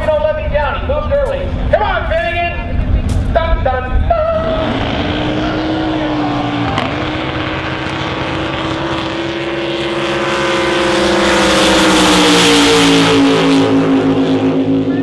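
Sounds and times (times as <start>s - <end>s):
racing boat engines passing: 4.1s - 15.0s.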